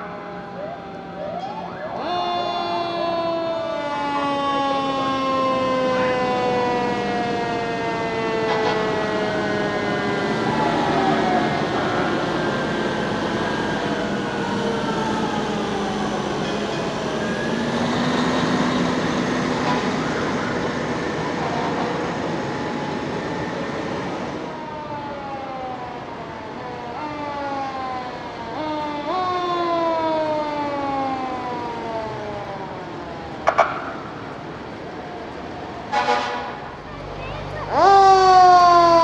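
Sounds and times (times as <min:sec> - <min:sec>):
siren winding down: 0:00.0 - 0:34.2
fire truck sirens wailing: 0:00.0 - 0:39.0
short loud horn blast: 0:35.9 - 0:36.6.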